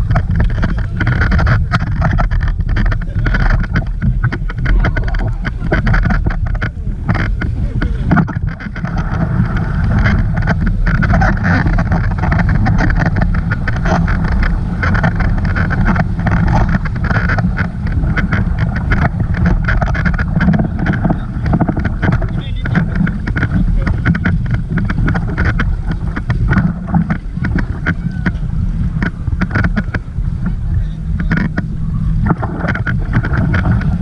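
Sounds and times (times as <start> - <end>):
boat rushing across water: 0.0 - 34.0
wind buffeting microphone: 0.0 - 34.0.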